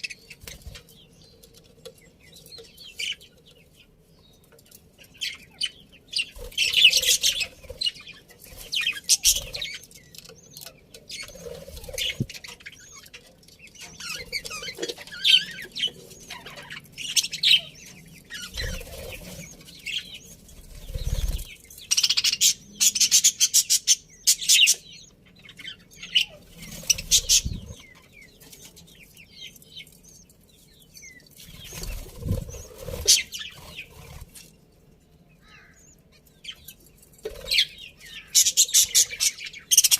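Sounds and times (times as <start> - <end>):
budgerigars chirping and chattering: 0.0 - 34.5, 35.4 - 39.9
wing flapping: 31.6 - 33.4.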